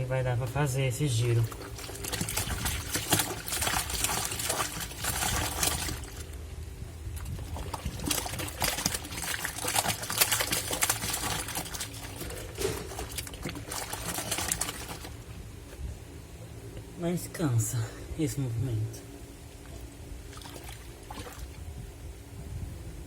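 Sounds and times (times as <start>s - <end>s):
low machine hum: 0.0s - 23.0s
water sloshing in washing machine: 1.0s - 15.8s, 19.7s - 21.8s.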